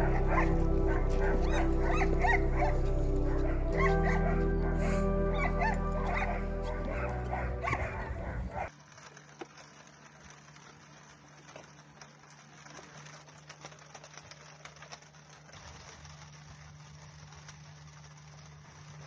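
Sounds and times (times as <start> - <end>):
background music: 0.0 - 8.7
dogs barking and yipping: 0.0 - 8.7
low steady hum: 0.0 - 13.8
faint crackling: 0.0 - 19.0.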